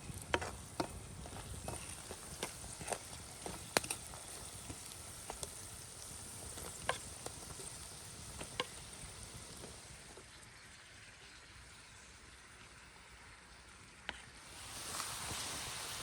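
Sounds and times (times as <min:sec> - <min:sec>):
campfire crackling: 0:00.0 - 0:10.6, 0:14.4 - 0:16.0
food sizzling in a pan: 0:00.0 - 0:10.8, 0:14.4 - 0:16.0.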